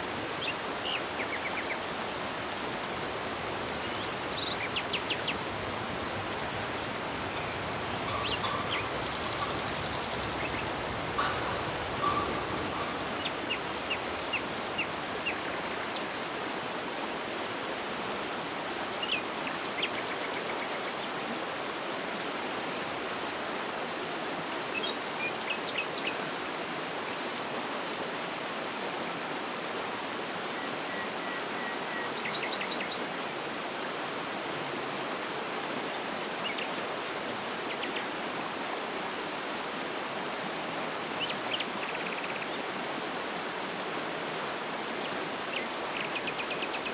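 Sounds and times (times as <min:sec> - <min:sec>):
waterfall rushing: 0:00.0 - 0:19.8, 0:26.4 - 0:46.9
bird chirps and trills: 0:03.6 - 0:16.1.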